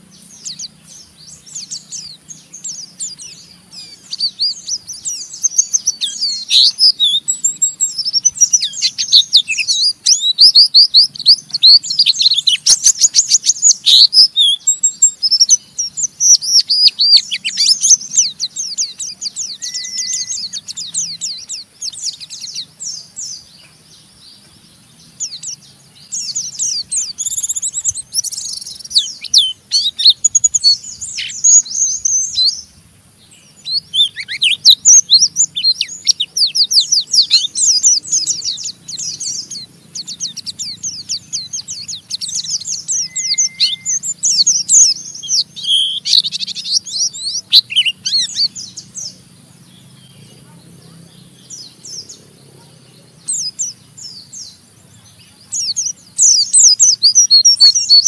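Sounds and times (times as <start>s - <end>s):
white-eye bird twittering: 0.0s - 58.0s.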